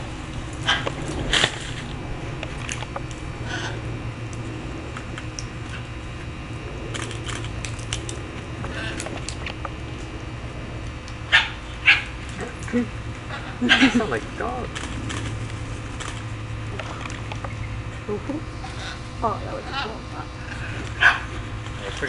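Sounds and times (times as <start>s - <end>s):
steady low hum: 0.0s - 22.0s
birds cracking nut shells: 6.8s - 9.8s, 14.6s - 17.7s.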